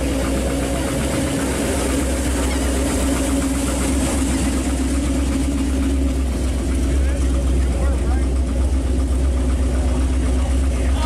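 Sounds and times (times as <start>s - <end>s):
car engine idling rumble: 0.0s - 11.0s.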